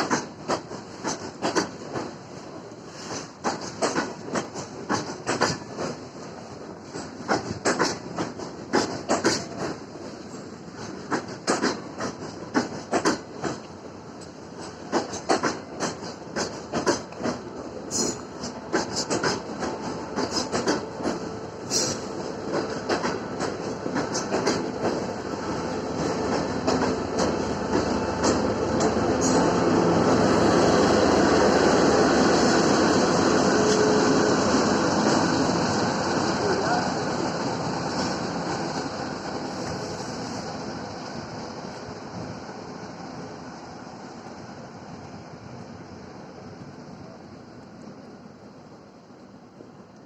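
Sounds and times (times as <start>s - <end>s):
train wheels clacking over rail joints: 0.0s - 29.7s
train rumble: 0.0s - 50.0s.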